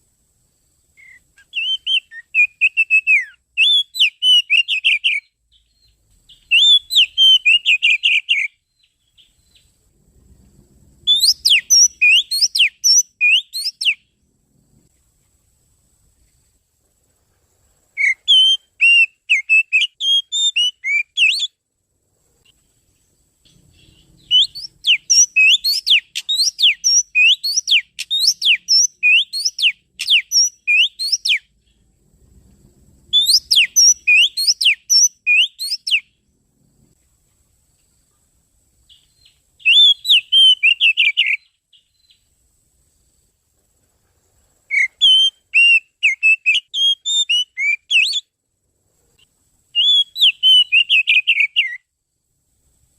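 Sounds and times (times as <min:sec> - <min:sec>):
bird singing whistled notes: 0:00.9 - 0:09.8, 0:11.0 - 0:14.2, 0:18.0 - 0:21.6, 0:23.4 - 0:31.9, 0:33.1 - 0:36.2, 0:38.9 - 0:42.3, 0:44.7 - 0:48.4, 0:49.7 - 0:51.9.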